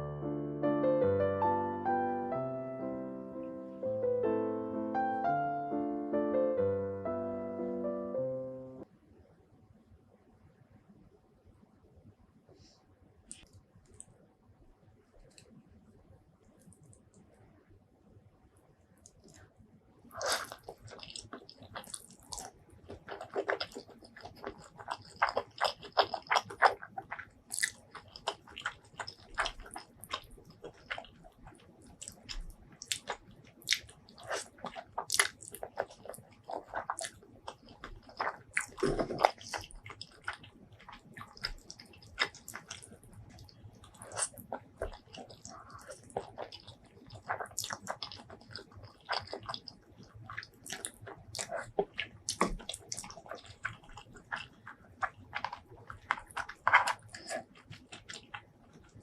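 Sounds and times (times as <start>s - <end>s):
person chewing crunchy food: 20.1s - 59.0s.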